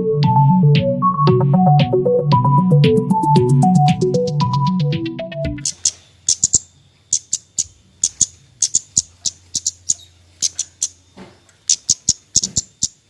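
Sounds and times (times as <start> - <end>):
songbird chirping: 5.6 - 13.0.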